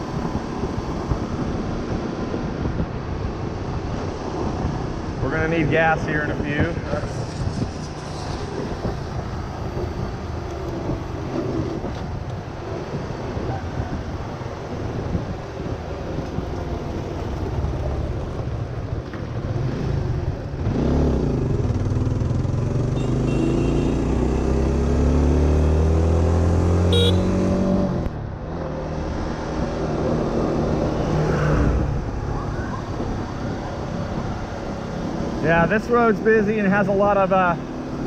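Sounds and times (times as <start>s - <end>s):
wind on microphone: 0.0s - 21.8s
motorcycle engine accelerating: 17.4s - 28.1s.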